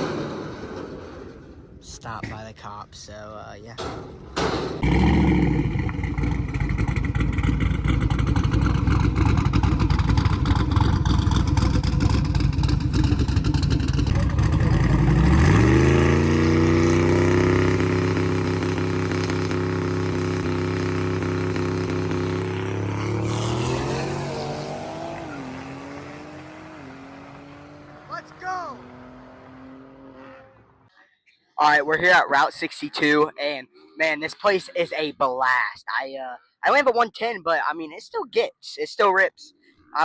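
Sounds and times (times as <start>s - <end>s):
car engine at full throttle: 0.0s - 1.8s, 4.4s - 30.9s.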